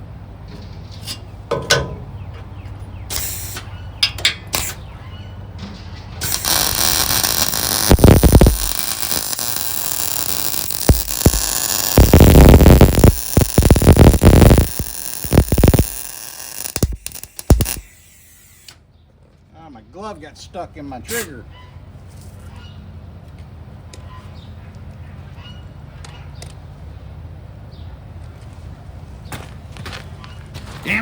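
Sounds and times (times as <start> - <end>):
power tool hissing on steel: 6.2 - 18.8.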